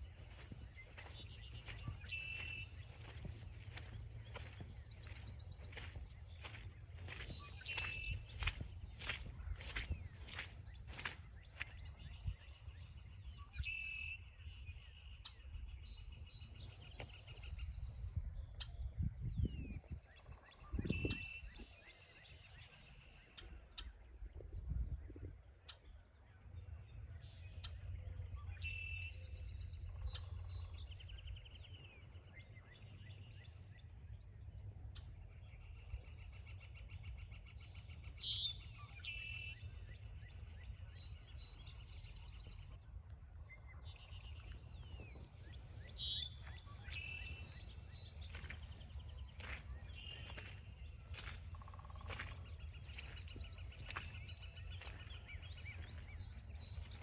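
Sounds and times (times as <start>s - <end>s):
crunching footsteps on trail: 0.0s - 12.3s, 16.5s - 17.5s, 44.2s - 57.0s
songbirds singing: 0.0s - 57.0s.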